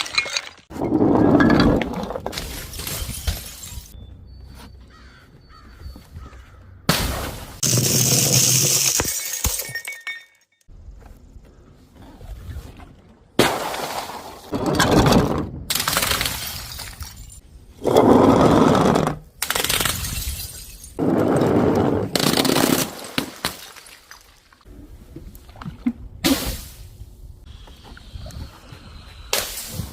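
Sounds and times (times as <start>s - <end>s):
glass bottles shattering: 0.0s - 4.0s, 7.6s - 10.7s, 15.8s - 17.4s, 19.8s - 21.0s.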